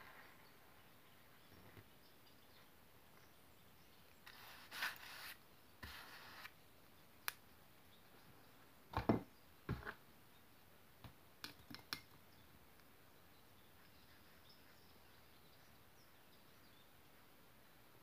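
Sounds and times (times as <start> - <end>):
scratchy rustle: 4.2 - 6.5.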